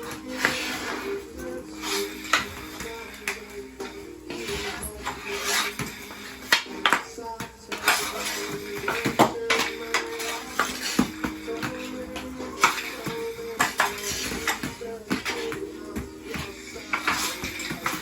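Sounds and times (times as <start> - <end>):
hockey stick clacking on puck: 1.8 - 3.5, 4.3 - 18.0.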